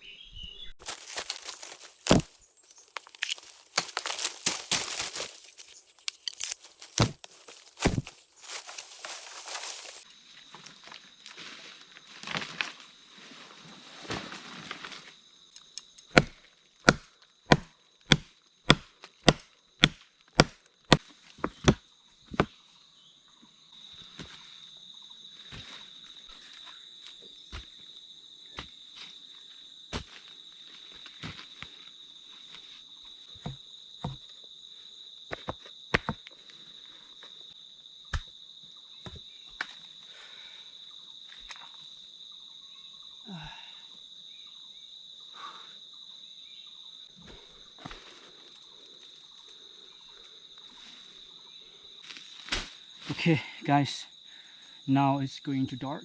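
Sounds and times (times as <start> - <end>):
chopping wood: 0.8 - 10.0, 16.1 - 22.5, 35.3 - 36.2, 38.1 - 38.3
high insect drone: 0.8 - 16.1, 21.2 - 56.0.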